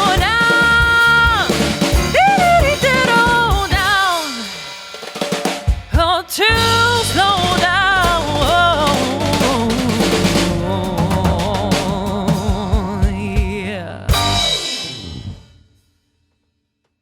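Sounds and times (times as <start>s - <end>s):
live band music: 0.0s - 4.5s, 6.5s - 15.4s.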